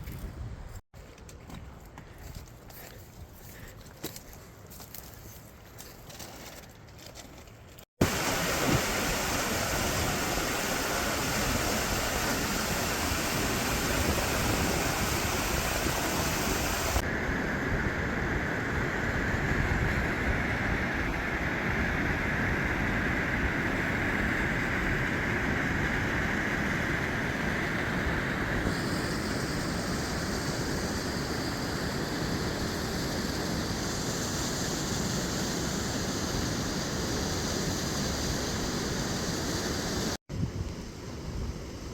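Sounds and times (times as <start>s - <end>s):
water flowing over cascades: 8.0s - 17.1s.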